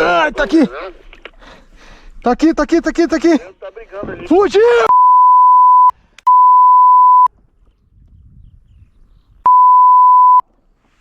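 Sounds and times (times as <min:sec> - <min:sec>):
censor bleep tone: 0:04.9 - 0:07.3, 0:09.5 - 0:10.4.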